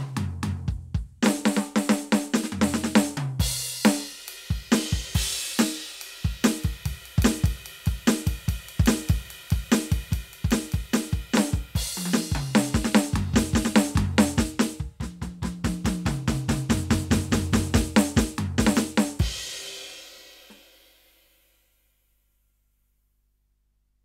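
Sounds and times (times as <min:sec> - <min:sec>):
electronic drum tom fill: 0:00.0 - 0:20.6
drum beat of kick snare hi-hat: 0:00.0 - 0:21.3.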